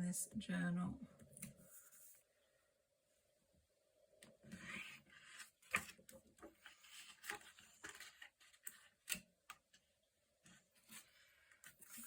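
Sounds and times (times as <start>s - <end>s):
paper rustling and crinkling: 4.5s - 9.8s, 10.7s - 12.0s.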